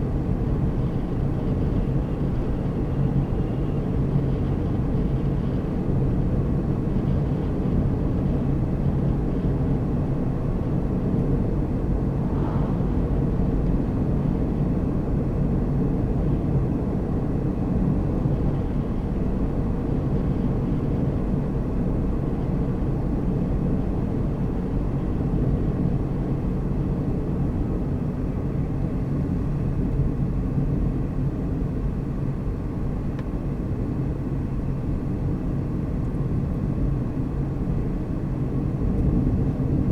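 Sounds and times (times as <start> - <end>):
car engine hum: 11.0 - 15.1
tyre and road noise: 12.1 - 14.4.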